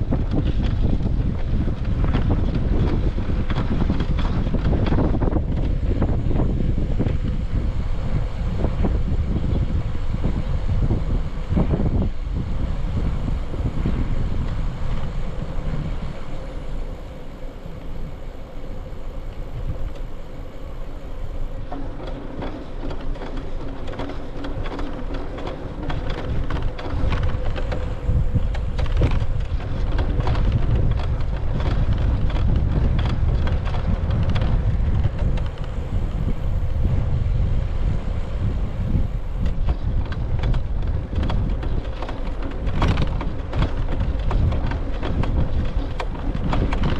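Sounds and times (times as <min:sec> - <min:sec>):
bicycle rattling and clicking: 0:00.0 - 0:46.9
wind rumbling on microphone: 0:00.0 - 0:46.9.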